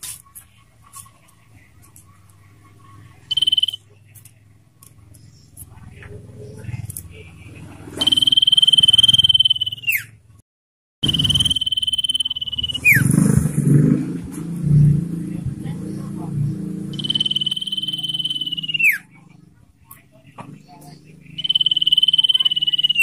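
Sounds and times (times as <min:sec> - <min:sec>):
rough chattering: 0:03.1 - 0:04.3, 0:16.9 - 0:19.1
bird whistling high notes: 0:08.0 - 0:10.2, 0:11.0 - 0:13.0, 0:17.0 - 0:19.0.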